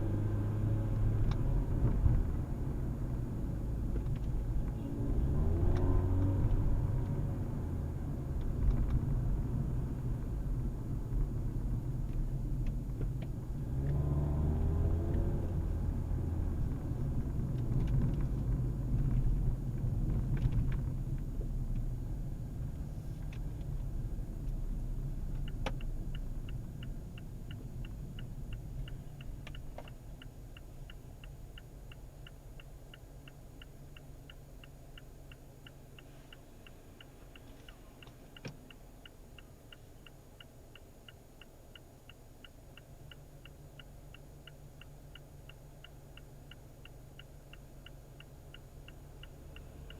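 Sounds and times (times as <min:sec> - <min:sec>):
steady even ticking: 0:23.4 - 0:49.9.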